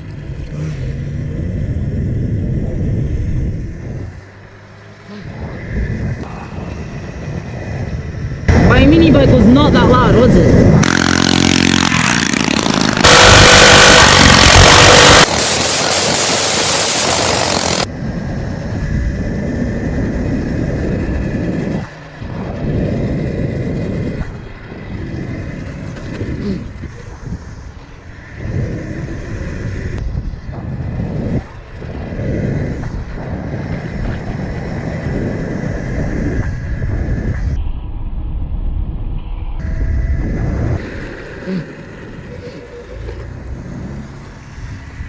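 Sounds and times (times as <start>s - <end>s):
motorbike engines revving: 0.0s - 37.5s, 39.7s - 45.0s
loud rushing noise: 10.8s - 17.9s.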